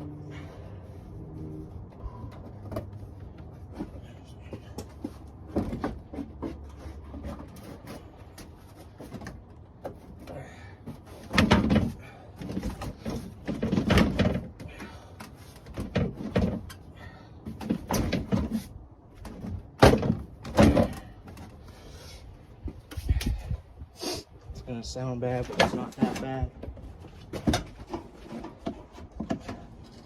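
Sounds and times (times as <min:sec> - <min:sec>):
plastic car trim knocks and clunks: 0:17.5 - 0:21.5.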